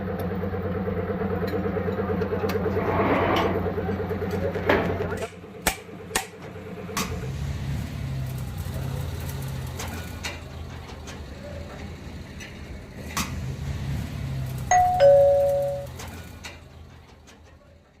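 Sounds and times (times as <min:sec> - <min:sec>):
two-note doorbell chime: 0:14.7 - 0:16.0.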